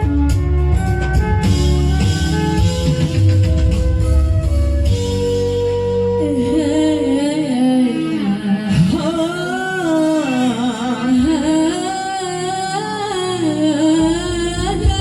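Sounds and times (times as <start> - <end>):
instrumental backing: 0.0 - 15.0
person singing long wavering notes: 6.2 - 15.0.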